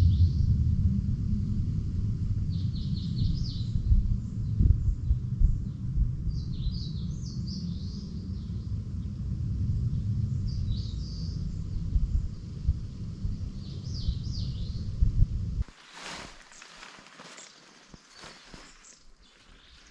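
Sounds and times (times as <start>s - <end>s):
wind rumble on microphone: 0.0s - 19.9s
songbird chirping: 15.6s - 19.9s.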